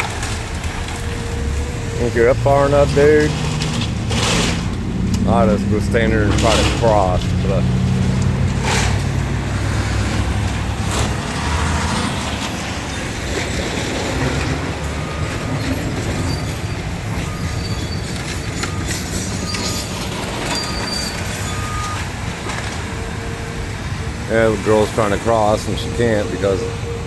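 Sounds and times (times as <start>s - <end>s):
metallic clanks: 0.0s - 22.9s
diesel engine running: 0.0s - 27.0s
short thin squeals: 16.2s - 22.0s.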